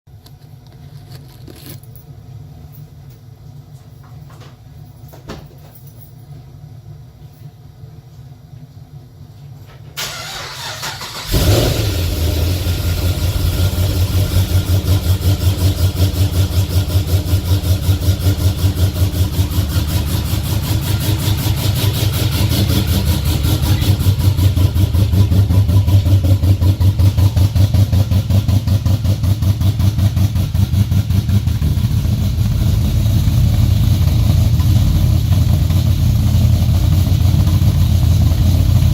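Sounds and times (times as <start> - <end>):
engine starting and idling: 10.0 - 29.4.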